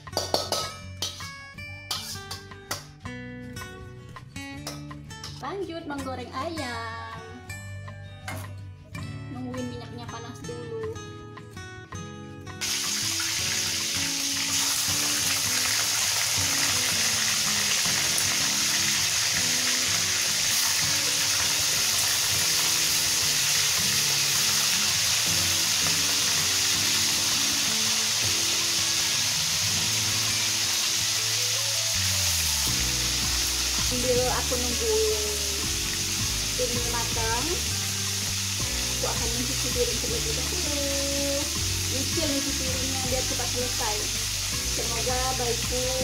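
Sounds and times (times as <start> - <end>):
background music: 0.0 - 46.0
chicken sizzling in hot oil: 12.6 - 46.0.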